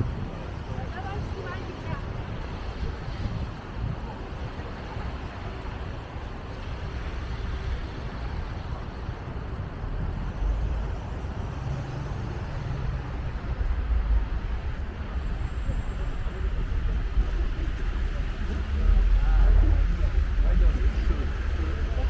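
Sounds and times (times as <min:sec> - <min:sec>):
passing cars: 0:00.0 - 0:22.0
low rumble: 0:09.8 - 0:22.0.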